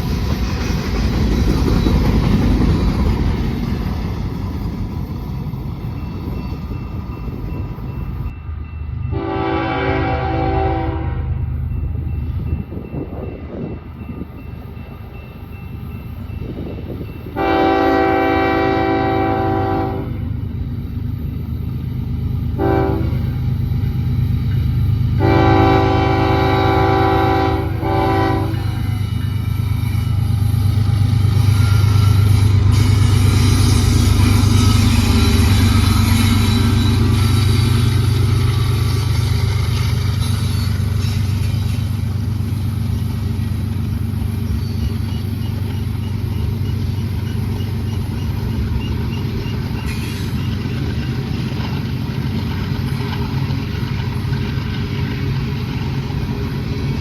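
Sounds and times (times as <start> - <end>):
freight cars rolling by: 0.0 - 8.8
locomotive engine rumble: 0.0 - 57.0
train horn chord: 9.1 - 11.4, 17.4 - 20.3, 22.6 - 23.4, 25.2 - 29.0.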